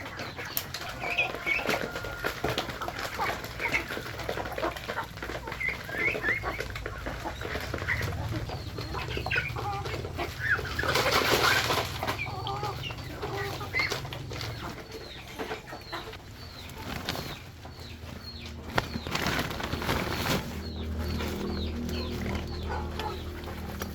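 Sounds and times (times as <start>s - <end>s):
birds calling: 0.0s - 23.9s
chickens clucking: 0.0s - 23.9s.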